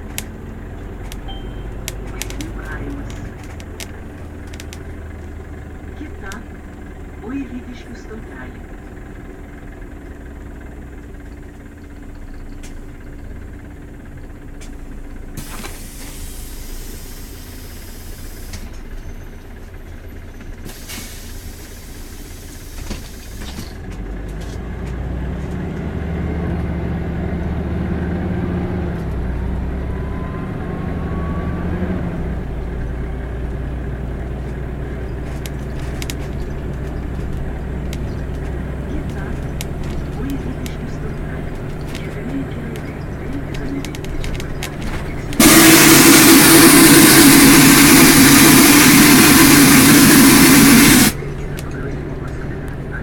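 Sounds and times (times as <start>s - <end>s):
bus diesel engine running: 0.0s - 53.0s
faint rising whine: 45.3s - 52.5s
compressed-air hiss: 45.4s - 51.2s.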